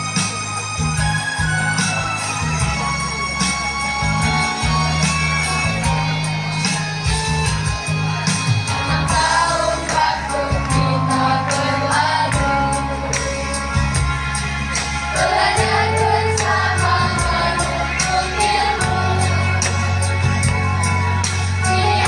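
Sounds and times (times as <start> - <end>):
instrumental accompaniment with beat: 0.0 - 22.0
children's choir singing: 8.7 - 13.7, 14.9 - 22.0.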